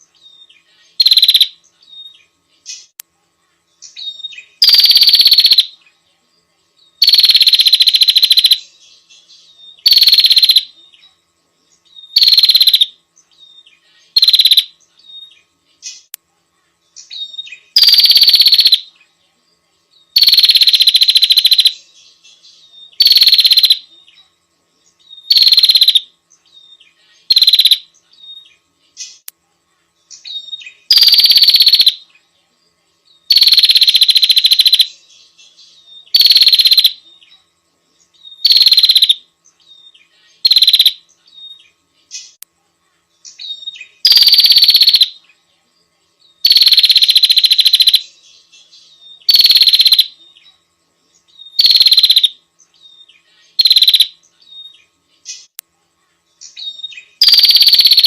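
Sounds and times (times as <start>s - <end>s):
songbird trilling: 0.2s - 2.9s, 3.8s - 5.8s, 7.0s - 11.1s, 11.8s - 16.1s, 17.0s - 19.0s, 20.1s - 24.2s, 25.0s - 29.2s, 30.1s - 32.0s, 33.2s - 37.4s, 38.1s - 42.4s, 43.2s - 45.3s, 46.4s - 50.5s, 51.2s - 55.5s, 56.4s - 58.0s.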